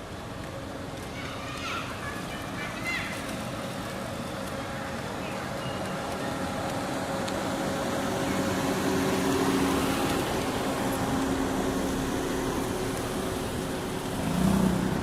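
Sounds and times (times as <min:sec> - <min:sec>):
vehicle engine running: 0:03.2 - 0:15.0.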